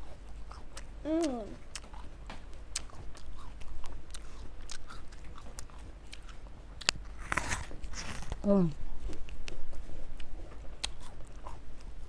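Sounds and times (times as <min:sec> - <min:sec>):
person chewing crisp fruit: 0:00.0 - 0:12.0
apple crunch: 0:02.7 - 0:08.8.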